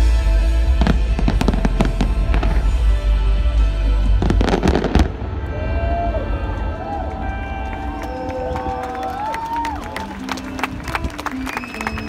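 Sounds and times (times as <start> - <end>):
loud show music: 0.0 - 12.0
fireworks bursting and crackling: 0.7 - 3.0, 4.0 - 8.3.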